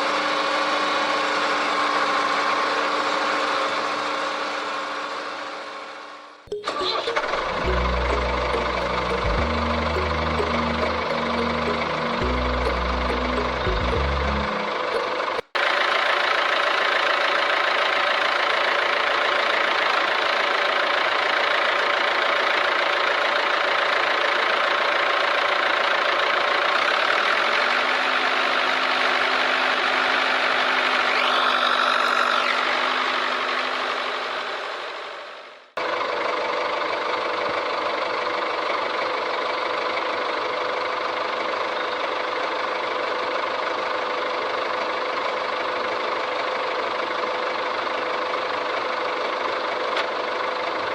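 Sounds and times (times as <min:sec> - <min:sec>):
small motor running: 0:30.6 - 0:33.7.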